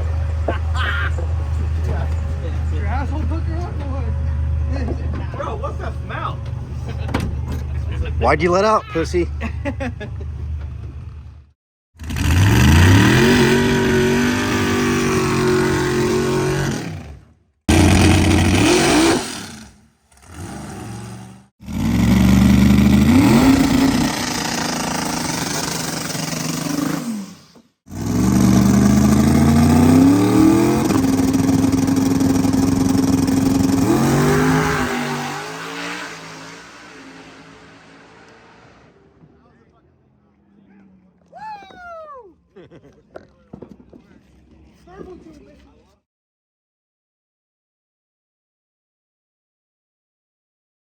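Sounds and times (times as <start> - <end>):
drag car engine revving: 12.0 - 39.1.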